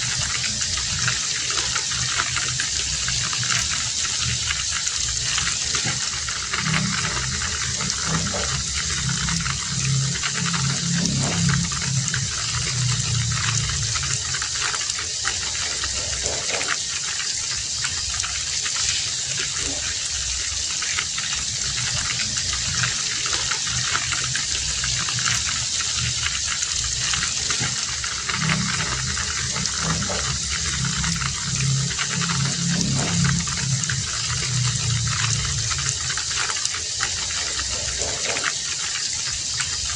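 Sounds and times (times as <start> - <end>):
heavy rain falling: 0.0 - 39.9
low rumble: 2.0 - 15.0, 21.3 - 38.0.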